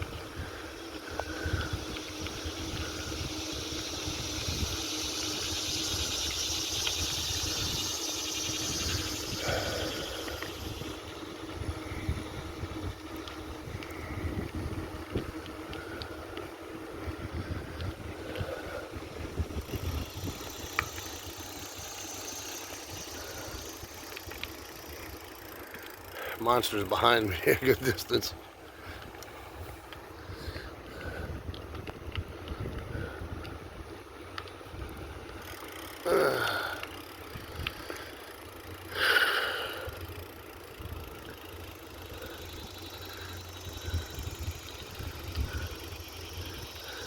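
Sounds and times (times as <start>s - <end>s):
wind rumbling on microphone: 0.0s - 25.0s, 28.2s - 35.4s, 43.6s - 47.0s
faint steady hiss: 0.0s - 47.0s.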